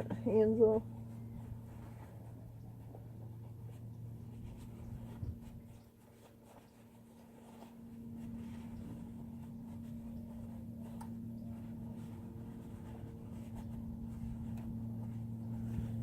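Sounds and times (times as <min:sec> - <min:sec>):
lower hum: 0:00.0 - 0:16.0
steady low hum: 0:00.0 - 0:16.0.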